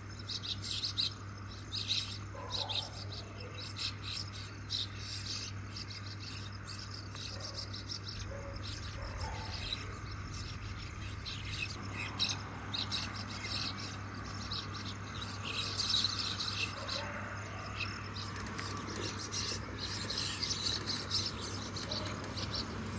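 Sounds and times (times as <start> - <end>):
mynas chirruping and chattering: 7.5 - 22.9.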